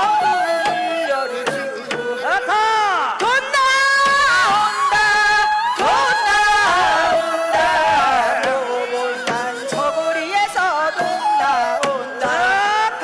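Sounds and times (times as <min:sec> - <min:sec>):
drum strokes: 0:05.8 - 0:13.0.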